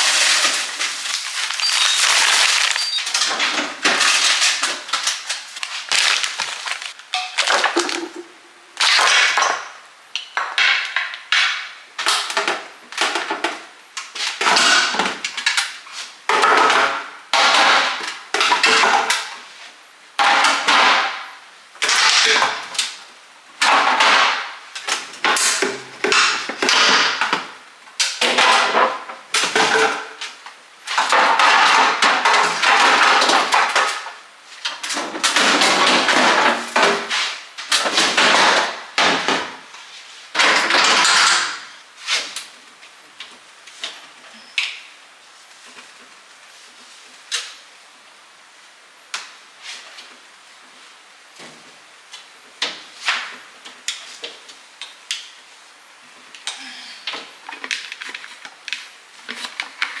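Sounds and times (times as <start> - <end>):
containers and drawers clicking: 0.0 - 9.0.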